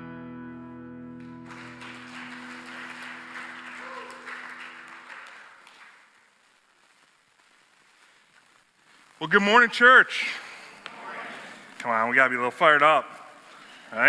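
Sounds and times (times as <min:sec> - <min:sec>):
guitar chord ringing out: 0:00.0 - 0:01.5
congregation applauding: 0:01.2 - 0:07.1.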